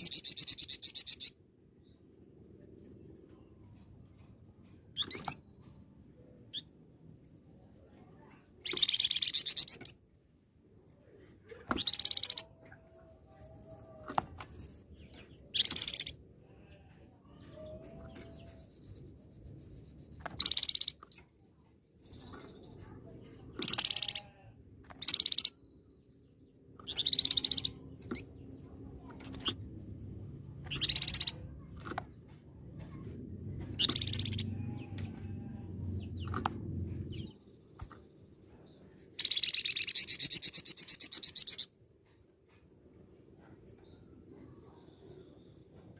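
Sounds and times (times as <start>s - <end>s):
songbird chattering: 8.6s - 10.0s, 15.5s - 16.7s, 18.2s - 24.4s, 25.0s - 25.8s, 26.8s - 30.0s, 30.7s - 31.6s, 33.7s - 34.6s, 39.2s - 41.7s.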